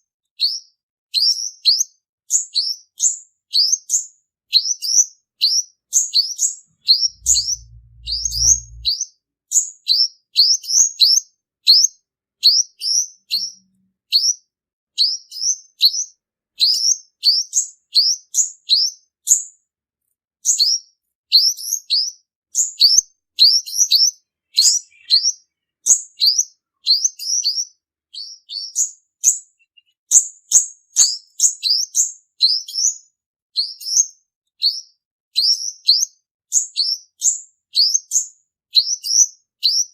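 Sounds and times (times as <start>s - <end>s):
sunbird chirping: 6.7s - 8.9s, 23.9s - 27.0s
short low hum: 6.9s - 9.0s.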